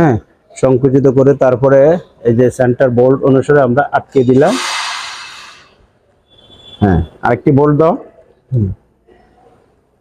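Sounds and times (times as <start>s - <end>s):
faint background noise: 0.0s - 10.0s
person speaking a syllable: 8.5s - 8.8s.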